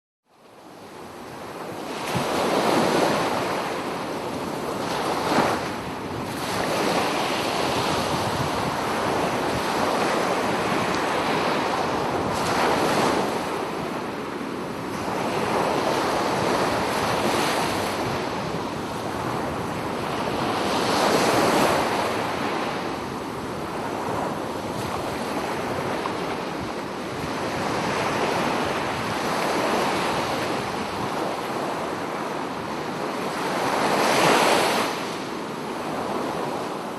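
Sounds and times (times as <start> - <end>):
sea waves breaking on shore: 0.7 - 36.9.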